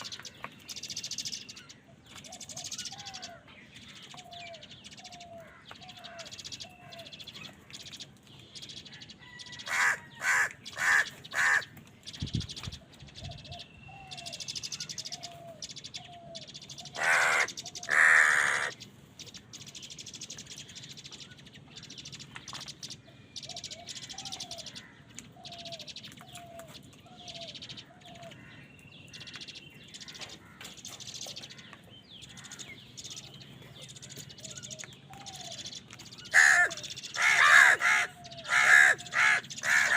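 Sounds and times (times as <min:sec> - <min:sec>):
crows cawing: 0:05.4 - 0:07.0, 0:09.5 - 0:11.7, 0:16.9 - 0:18.8, 0:28.3 - 0:30.8, 0:31.5 - 0:32.8, 0:36.3 - 0:39.9.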